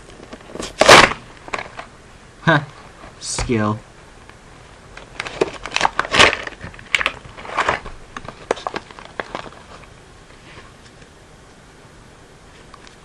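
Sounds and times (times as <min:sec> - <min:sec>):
plastic and cardboard packaging crackles: 0:00.2 - 0:01.9, 0:05.0 - 0:09.9.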